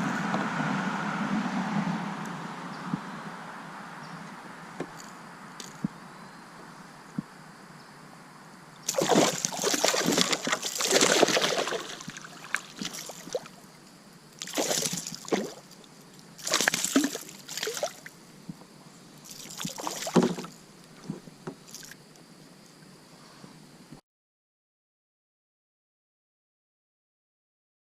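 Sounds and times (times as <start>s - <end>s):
water dripping: 8.8s - 13.6s
water splashing at a kayak: 8.8s - 18.2s, 19.2s - 22.0s.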